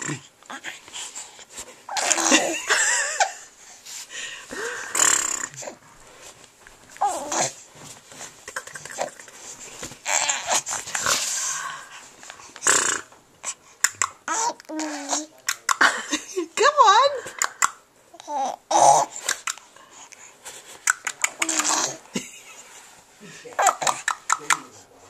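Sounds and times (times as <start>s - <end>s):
baby huffing and squealing: 1.9s - 2.6s, 7.0s - 7.6s, 10.0s - 11.3s, 12.7s - 15.3s, 18.2s - 19.6s, 20.9s - 22.0s, 23.6s - 24.6s.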